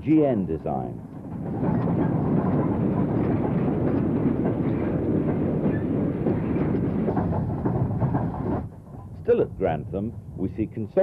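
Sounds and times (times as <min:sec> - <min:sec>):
steam train running: 0:00.0 - 0:11.0.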